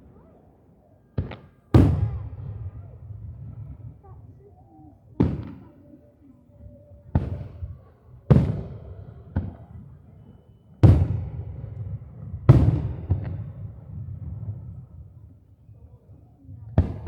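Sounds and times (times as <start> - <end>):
fireworks booming with low rumble: 0.0 - 17.0
small firework cracks: 1.2 - 4.2, 5.2 - 6.0, 7.2 - 15.5.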